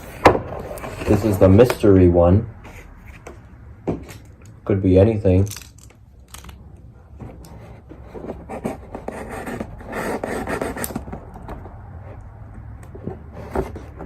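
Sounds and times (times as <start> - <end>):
box cutter scraping tape: 8.4 - 11.4.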